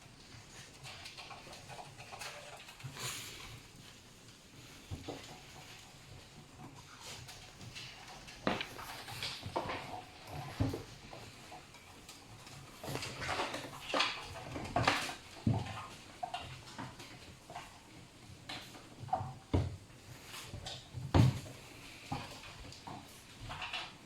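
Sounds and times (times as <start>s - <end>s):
knocks and bumps on washing machine: 20.9s - 21.5s.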